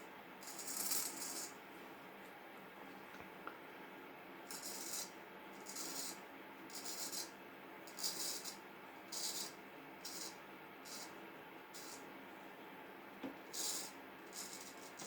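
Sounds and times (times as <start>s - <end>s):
razor scraping beard: 4.5s - 7.3s, 7.9s - 8.6s, 9.2s - 11.2s, 11.8s - 12.0s, 13.6s - 15.0s.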